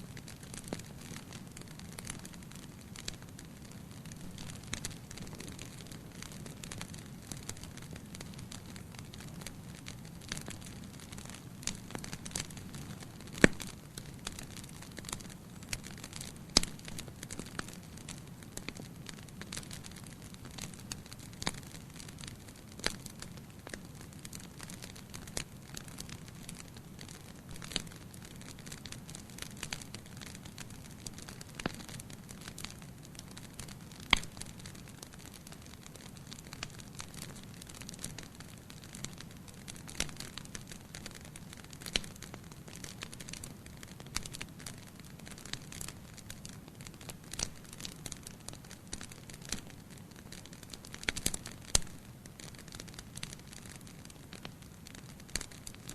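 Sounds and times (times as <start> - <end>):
burning wood crackling: 0.0 - 55.9
low rumble of flames: 0.0 - 55.9.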